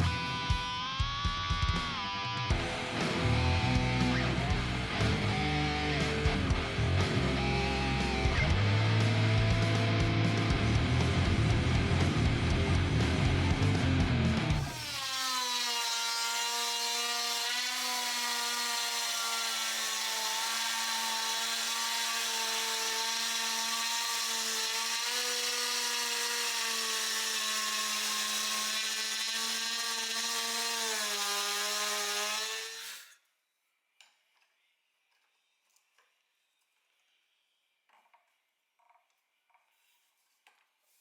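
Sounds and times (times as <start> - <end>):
power tool motor whining on wood: 14.6 - 33.2.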